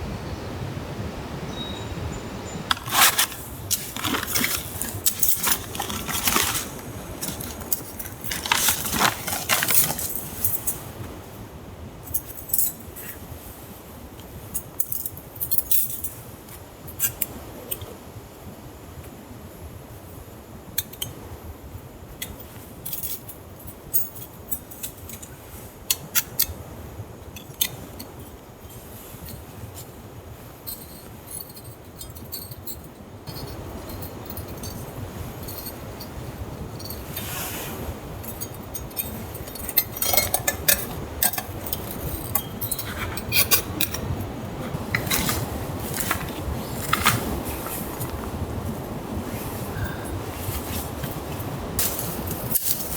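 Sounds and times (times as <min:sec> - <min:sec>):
steady background hiss: 0:00.0 - 0:52.9
metallic clinks and clatters: 0:02.7 - 0:11.0, 0:22.8 - 0:25.3, 0:30.6 - 0:37.3, 0:38.2 - 0:48.2.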